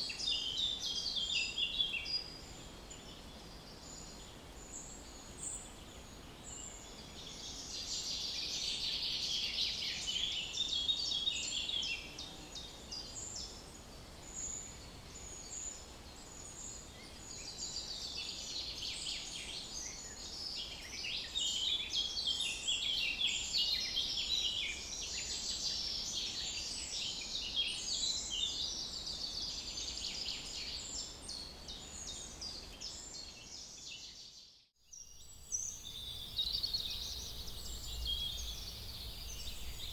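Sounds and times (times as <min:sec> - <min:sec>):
small birds chirping: 0:34.9 - 0:39.9
low outdoor background: 0:35.0 - 0:39.9.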